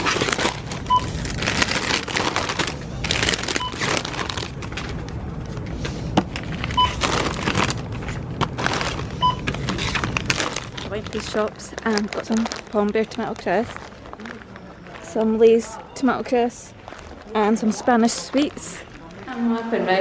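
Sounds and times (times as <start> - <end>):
snack packets crinkling: 0.0 - 5.7, 6.3 - 19.4
checkout clattering: 0.0 - 19.7
barcode scanner beeping: 9.2 - 9.5.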